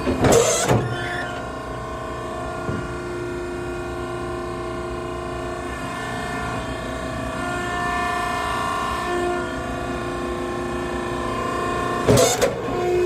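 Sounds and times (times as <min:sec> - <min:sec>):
hydraulic pump humming: 0:00.0 - 0:13.0.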